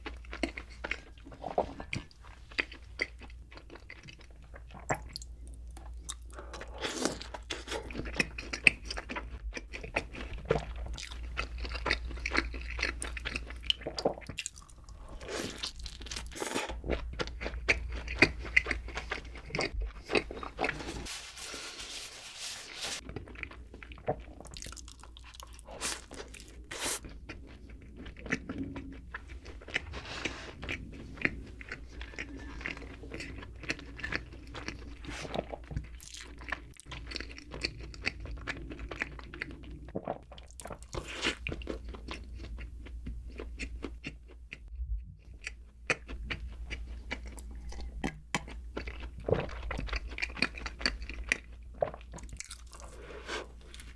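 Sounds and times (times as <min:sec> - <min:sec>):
chewing and crunching: 0:00.0 - 0:21.1, 0:23.0 - 0:53.9.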